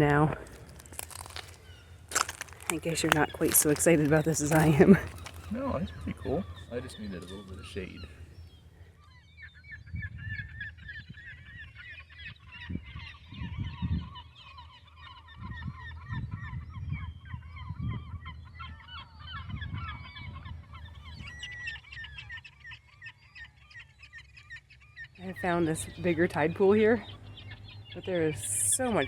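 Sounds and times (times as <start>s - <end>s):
flock of birds calling: 0.0s - 16.3s, 18.2s - 29.0s.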